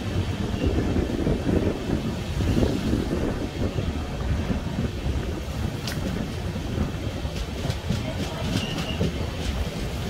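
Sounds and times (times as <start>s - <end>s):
train rumble inside coach: 0.0s - 10.0s
wheels clicking over rail joints: 5.7s - 10.0s.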